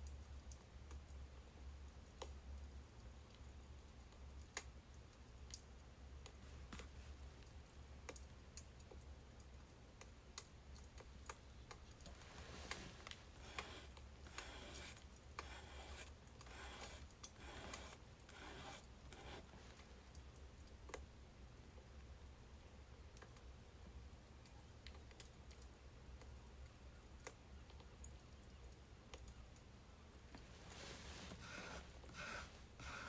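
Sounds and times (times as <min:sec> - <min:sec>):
wood fire crackling: 0:02.9 - 0:21.8.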